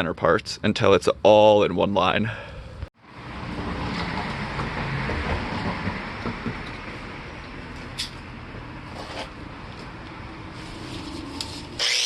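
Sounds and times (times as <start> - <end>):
grinding wheel on metal: 11.8 - 12.0.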